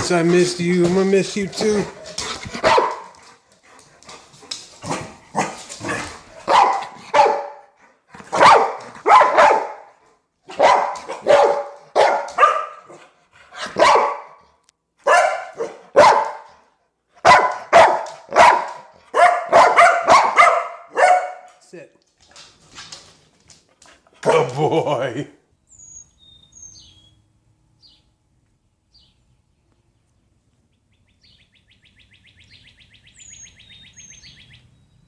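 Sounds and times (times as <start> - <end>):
dog barking: 1.9 - 3.2, 4.9 - 7.7, 8.3 - 21.6.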